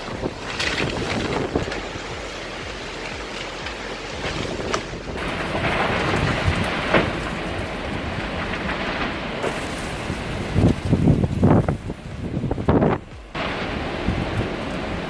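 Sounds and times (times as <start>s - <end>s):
steady rain: 0.0s - 15.0s
wind on microphone: 0.0s - 15.0s.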